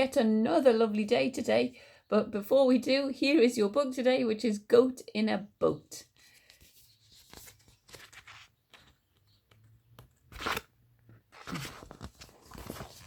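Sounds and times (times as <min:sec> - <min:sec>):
book pages rustling: 0:06.2 - 0:13.0
page turning swish: 0:10.3 - 0:10.7, 0:11.4 - 0:13.0.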